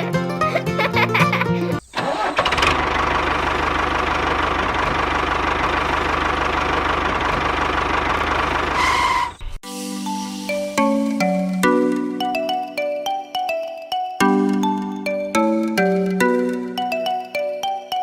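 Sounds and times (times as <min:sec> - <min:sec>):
background music: 0:00.0 - 0:01.8, 0:09.6 - 0:18.0
engine running: 0:01.7 - 0:09.3.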